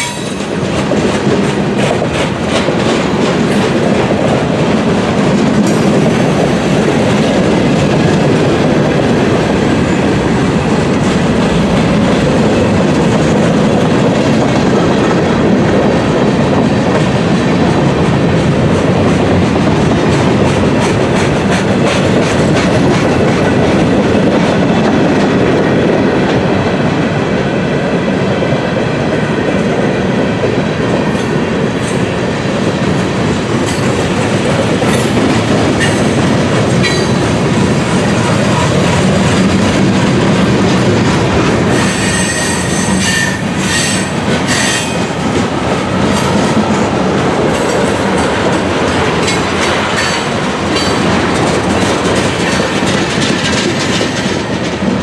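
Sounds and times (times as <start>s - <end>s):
freight train wheels rumbling: 0.0s - 55.0s
wheels clattering over rail joints: 31.0s - 55.0s.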